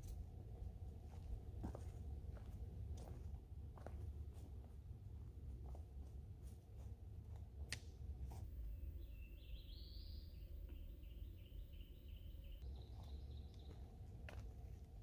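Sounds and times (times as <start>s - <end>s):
steady low rumble: 0.0s - 15.0s
songbird singing: 8.4s - 14.7s.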